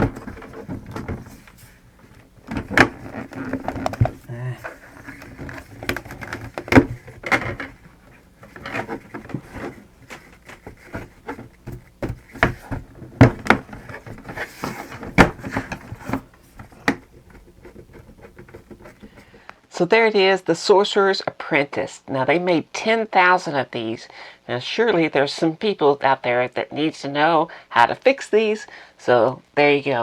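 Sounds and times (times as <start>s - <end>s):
clicks of plastic parts handled: 0.0s - 19.4s.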